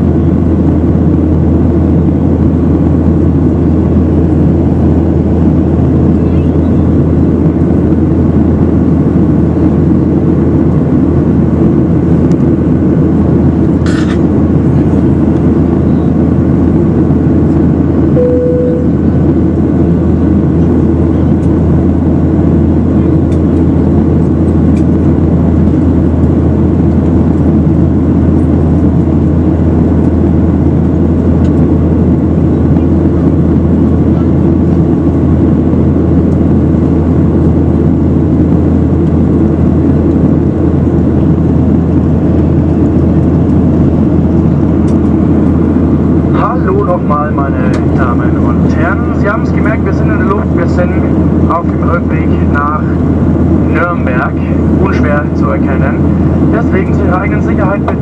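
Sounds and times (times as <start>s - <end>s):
airliner cabin engine and airflow noise: 0.0s - 58.0s
brief single tone: 15.8s - 16.1s, 18.2s - 19.1s.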